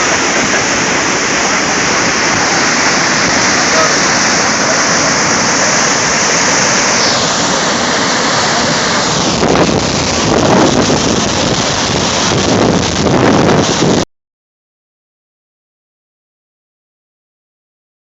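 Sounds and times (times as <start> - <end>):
waterfall rushing: 0.0 - 14.0
wind buffeting microphone: 8.8 - 14.0.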